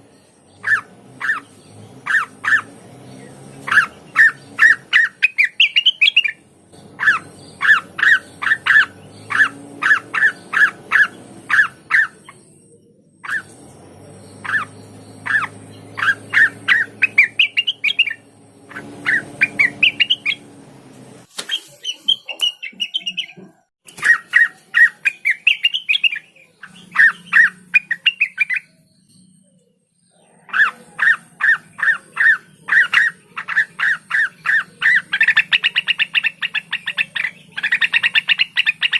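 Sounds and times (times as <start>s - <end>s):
bird calling in rapid runs: 0.6s - 2.8s, 3.6s - 12.5s, 14.3s - 20.4s, 21.3s - 28.7s, 30.4s - 38.9s
low hum: 6.4s - 21.3s.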